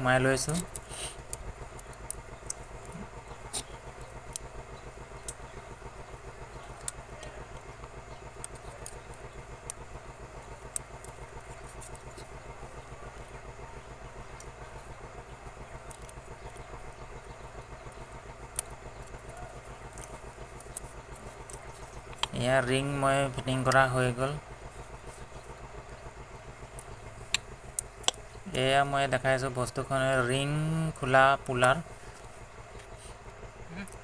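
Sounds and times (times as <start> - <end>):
engine running: 0.0 - 34.0
sharp light clicks: 0.4 - 5.6, 6.5 - 12.4, 14.2 - 22.5, 25.2 - 28.6.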